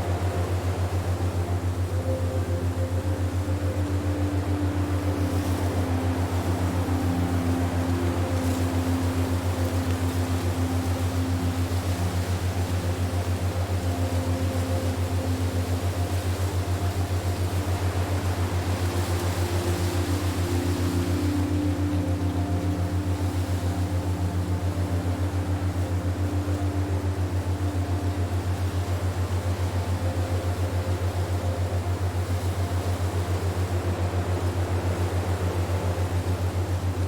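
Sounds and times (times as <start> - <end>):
low pulsing drone hum: 0.0 - 37.0.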